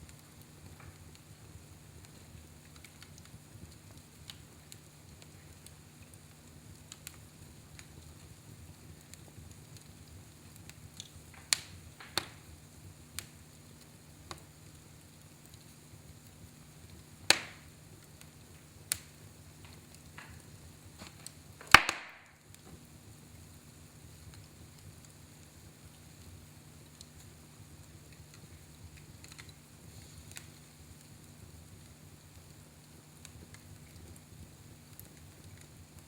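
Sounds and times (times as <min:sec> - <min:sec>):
wood fire crackling: 0:00.0 - 0:36.0
sharp fire pops: 0:09.0 - 0:15.8, 0:16.9 - 0:22.9, 0:26.9 - 0:31.3.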